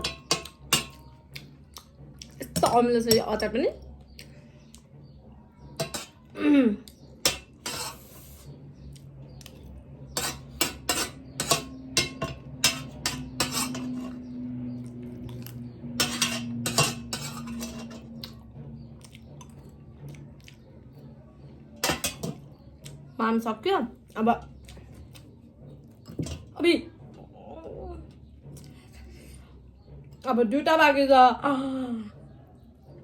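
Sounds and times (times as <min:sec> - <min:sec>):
cutlery clinking on a plate: 0:00.0 - 0:01.2, 0:05.8 - 0:06.2, 0:07.2 - 0:08.1, 0:10.2 - 0:14.2, 0:16.0 - 0:18.3, 0:21.8 - 0:22.5.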